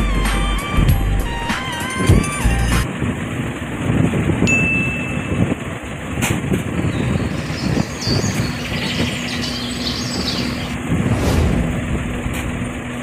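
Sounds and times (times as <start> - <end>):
engine rumbling: 2.1 - 13.0
steady hum: 10.6 - 13.0.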